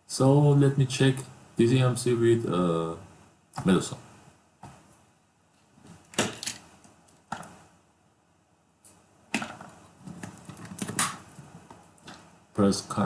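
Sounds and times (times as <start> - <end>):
plastic parts clicking: 6.0 - 6.7.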